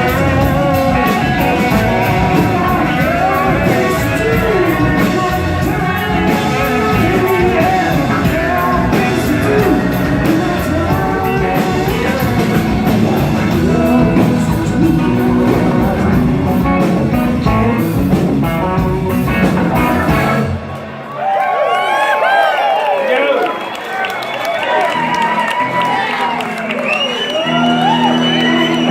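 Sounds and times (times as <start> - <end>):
lead singer singing: 0.0 - 20.6
live rock band playing: 0.0 - 21.0, 24.8 - 28.9.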